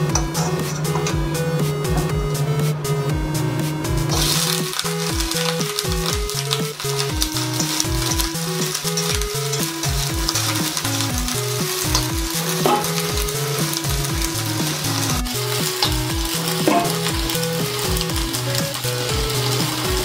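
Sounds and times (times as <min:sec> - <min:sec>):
background music with bass beat: 0:00.0 - 0:20.0
vegetables sizzling in a wok: 0:00.0 - 0:20.0
spatula tossing food: 0:04.1 - 0:20.0.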